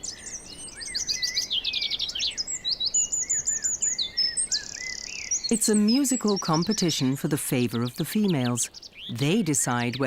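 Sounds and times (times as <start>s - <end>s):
songbirds singing: 0.0s - 10.0s.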